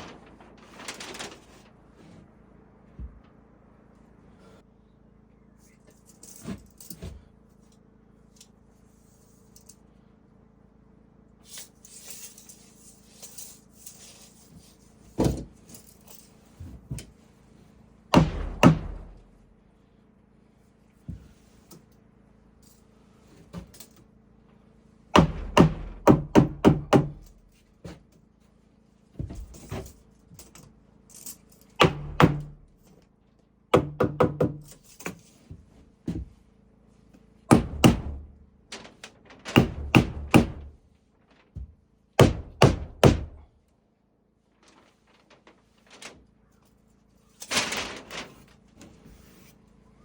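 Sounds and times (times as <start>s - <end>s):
hammer driving nails into wood: 18.1s - 19.2s, 25.2s - 27.3s, 31.8s - 32.6s, 33.8s - 34.8s, 37.5s - 38.3s, 39.5s - 40.7s, 42.2s - 43.4s.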